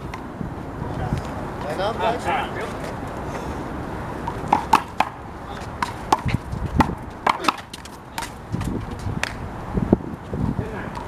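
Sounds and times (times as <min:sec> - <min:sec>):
handball smacking wall and court: 0:04.3 - 0:09.4.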